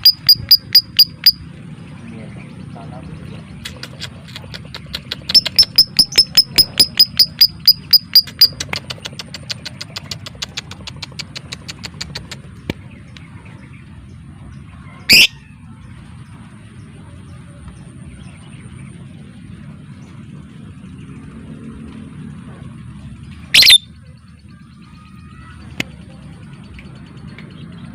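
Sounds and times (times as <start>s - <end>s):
lovebird chattering: 0.0s - 1.4s, 3.4s - 13.2s, 23.5s - 23.9s
shrill bird call: 14.9s - 15.6s, 23.5s - 24.0s.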